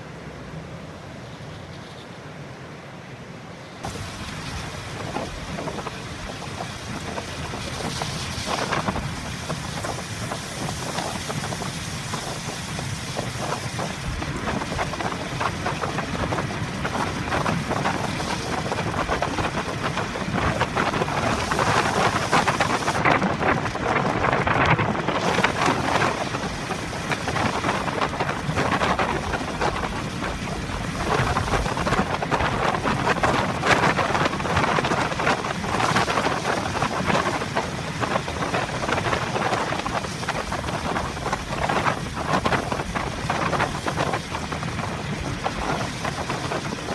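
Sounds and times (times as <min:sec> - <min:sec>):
wet road noise: 0:00.0 - 0:46.9
heavy rain pelting a car: 0:03.8 - 0:46.9.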